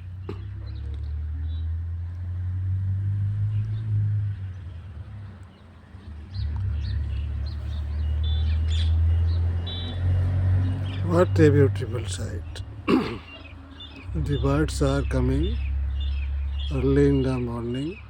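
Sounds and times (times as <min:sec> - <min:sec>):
small birds chirping: 0:00.0 - 0:18.0
loud low rumble: 0:14.0 - 0:17.7.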